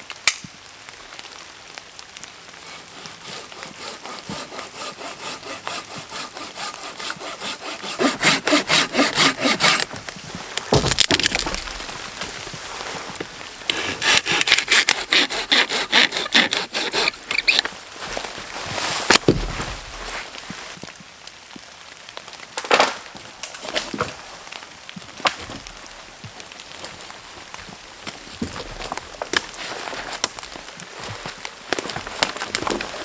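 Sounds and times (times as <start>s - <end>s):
loud wood crack: 2.2s - 18.4s, 19.0s - 20.2s, 22.5s - 33.0s
hand saw cutting wood: 2.6s - 11.8s, 13.6s - 17.7s
wood knocking: 4.3s - 10.0s, 10.6s - 11.9s.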